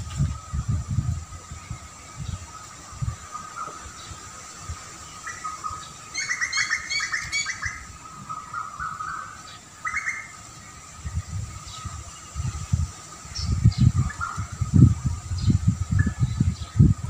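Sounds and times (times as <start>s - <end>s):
birds chirping: 0.0s - 17.0s
wavering bird call: 5.2s - 10.4s.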